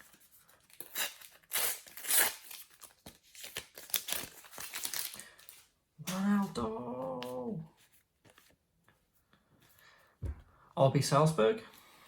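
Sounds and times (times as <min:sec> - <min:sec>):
wrapper tearing and crinkling: 0:00.0 - 0:06.5.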